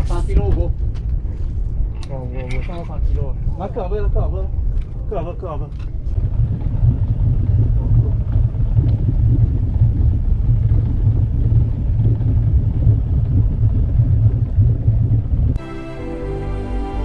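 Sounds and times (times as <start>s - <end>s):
boat engine rumbling: 6.0s - 17.0s.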